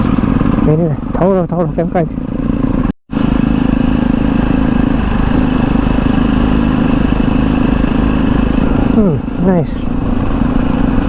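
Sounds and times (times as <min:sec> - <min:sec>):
motorcycle engine running: 0:00.0 - 0:11.0
wind noise: 0:03.2 - 0:11.0.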